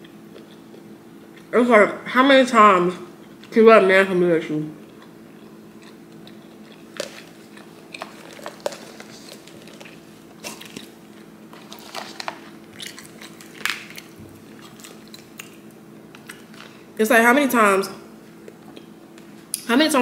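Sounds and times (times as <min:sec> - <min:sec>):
person chewing and crunching food: 0:00.0 - 0:01.5, 0:03.1 - 0:03.5, 0:04.7 - 0:16.9, 0:18.2 - 0:19.6
faint steady hum: 0:00.0 - 0:20.0.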